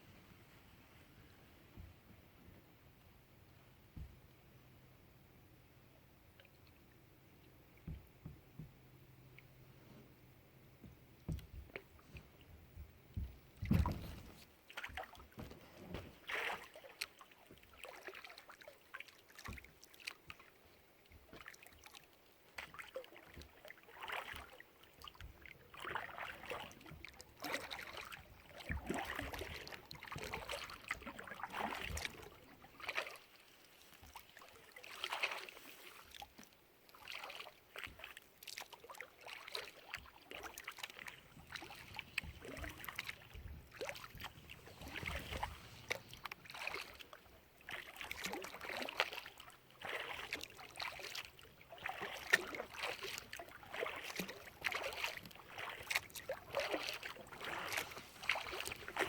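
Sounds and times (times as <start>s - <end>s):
paddle thump: 13.1s - 14.4s
kayak paddle splashes: 13.1s - 59.0s.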